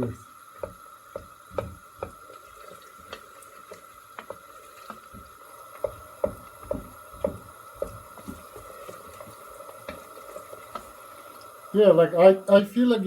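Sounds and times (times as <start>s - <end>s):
spoon knocking and scraping pot: 0.6s - 2.3s, 4.1s - 11.0s.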